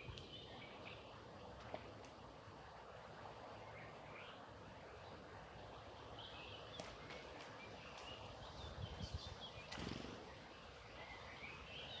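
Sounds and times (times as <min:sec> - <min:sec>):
birds chirping: 0:00.0 - 0:02.3, 0:03.5 - 0:12.0.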